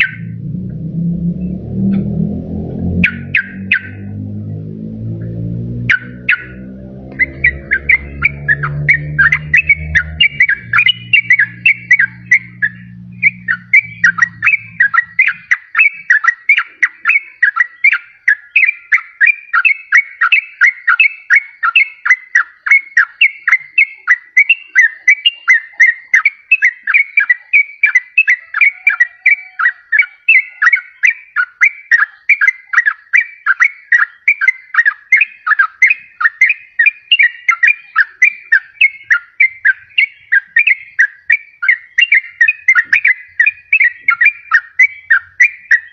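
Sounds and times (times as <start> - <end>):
bird singing bubbly chirps: 0.0 - 0.4, 1.4 - 45.9.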